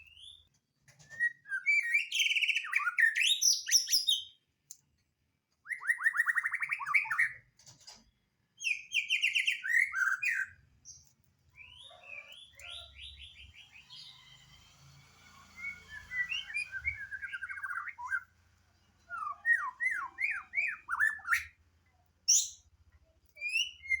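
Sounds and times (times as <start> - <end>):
bird singing trills and whistles: 0.0 - 4.4, 5.6 - 7.4, 8.6 - 11.0, 15.3 - 18.3, 19.1 - 21.6, 22.3 - 22.6, 23.4 - 24.0.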